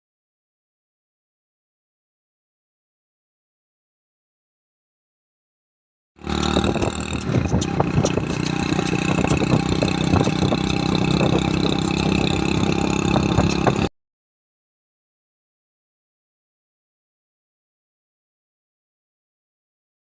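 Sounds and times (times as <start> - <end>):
motorcycle engine running: 6.2 - 13.9
small clattering ticks: 6.4 - 13.9.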